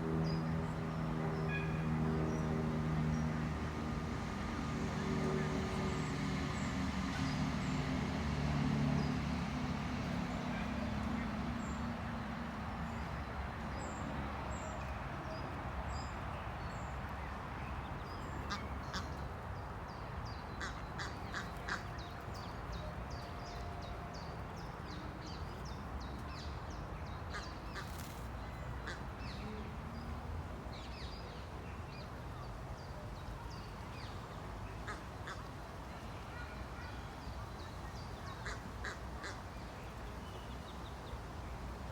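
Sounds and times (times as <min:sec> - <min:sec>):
ducklings peeping: 0:20.6 - 0:22.5.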